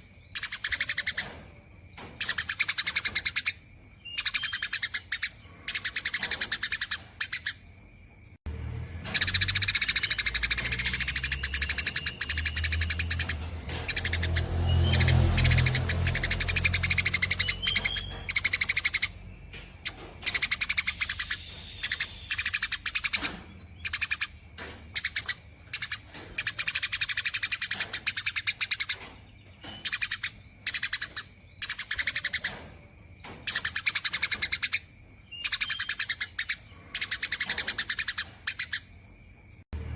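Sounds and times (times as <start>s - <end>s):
sparrow chattering trills: 0.0s - 8.4s, 9.0s - 39.6s.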